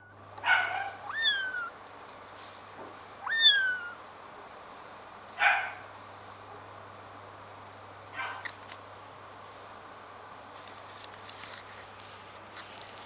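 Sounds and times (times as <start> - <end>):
young animal high-pitched cries: 0.0 - 1.8, 3.2 - 4.0.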